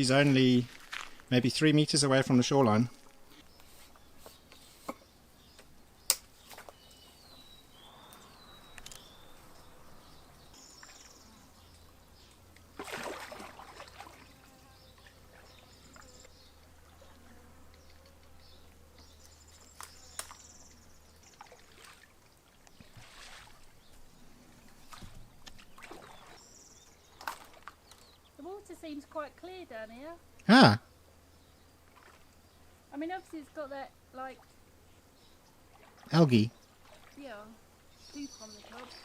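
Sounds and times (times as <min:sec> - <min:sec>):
paddle dipping and dripping water: 0:10.5 - 0:17.0, 0:21.1 - 0:24.0, 0:24.6 - 0:28.0, 0:31.8 - 0:32.4, 0:35.7 - 0:37.2.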